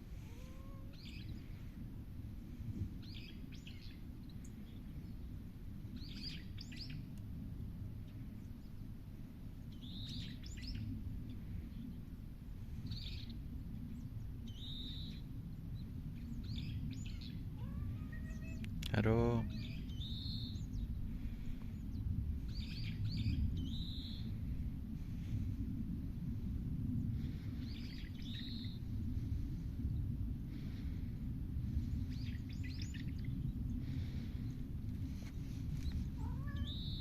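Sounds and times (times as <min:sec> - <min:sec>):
low background rumble: 0:00.0 - 0:37.0
birds chirping: 0:35.8 - 0:37.0.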